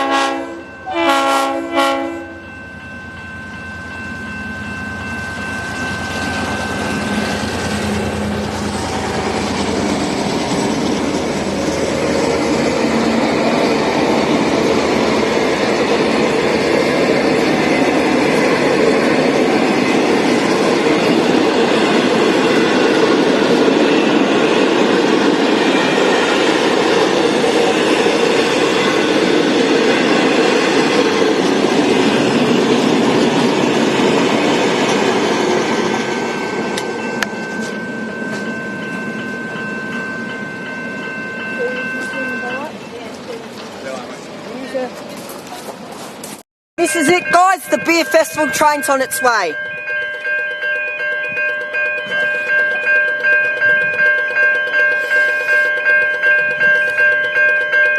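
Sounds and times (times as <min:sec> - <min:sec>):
steady high tones: 0:02.1 - 0:44.8, 0:46.8 - 0:57.9
train wheels clattering on track: 0:05.1 - 0:46.4.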